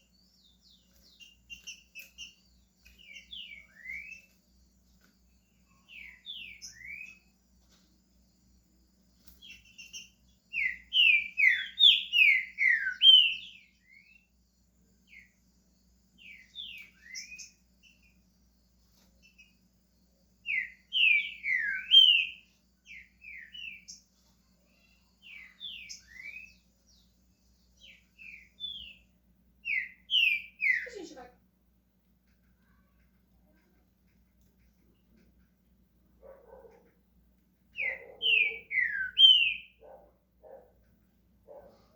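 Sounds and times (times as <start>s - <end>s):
bird singing whistled notes: 3.0s - 4.4s, 5.7s - 7.3s, 9.4s - 14.3s, 16.2s - 18.2s, 20.5s - 24.0s, 25.2s - 27.1s, 27.8s - 31.0s, 37.8s - 39.8s.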